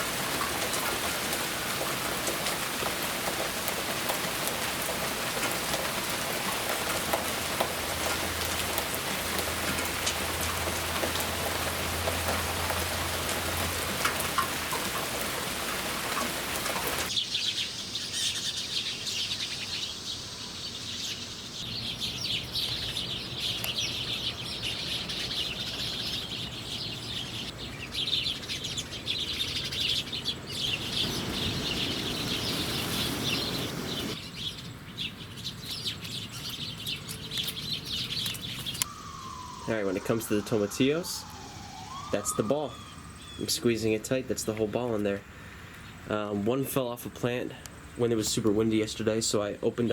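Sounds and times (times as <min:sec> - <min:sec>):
steady rain: 0:00.0 - 0:17.1, 0:30.0 - 0:34.2
birds chirping: 0:00.0 - 0:49.9.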